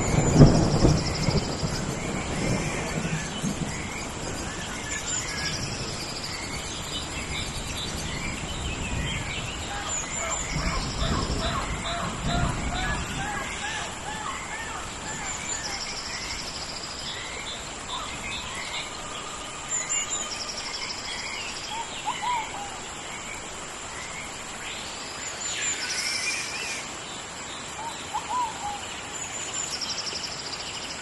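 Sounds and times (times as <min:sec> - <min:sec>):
pulsing insect trills: 0:00.0 - 0:22.8
longer sweeping bird call: 0:00.0 - 0:27.0
rain hiss: 0:00.0 - 0:31.0.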